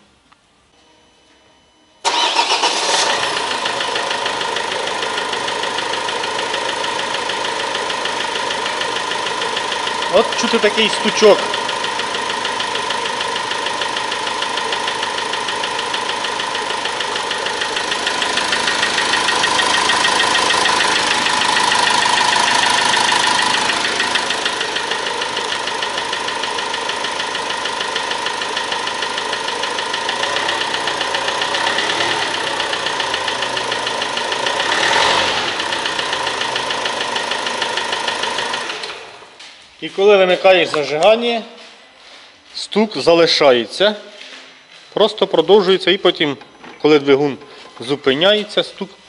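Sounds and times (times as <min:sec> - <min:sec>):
diesel engine idling with knock: 0:03.4 - 0:39.3.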